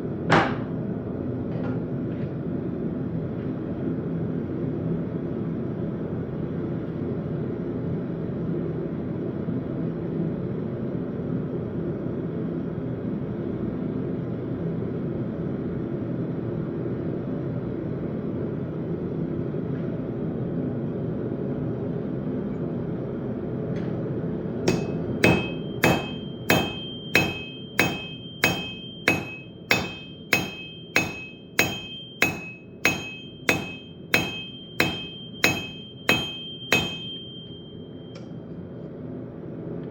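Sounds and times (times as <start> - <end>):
hammer ringing on anvil: 24.7 - 38.2.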